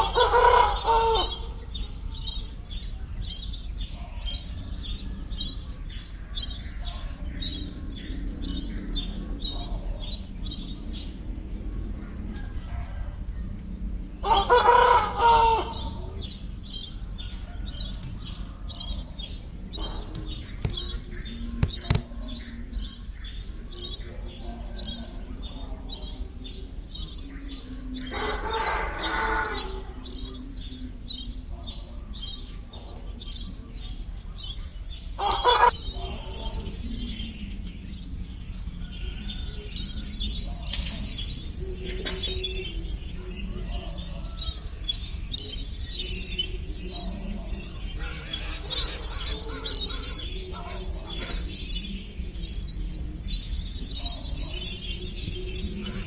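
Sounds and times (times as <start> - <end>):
loud drawn-out bird calls: 0.0 - 13.4, 14.1 - 26.4, 27.0 - 31.4, 34.5 - 37.4, 38.8 - 56.0.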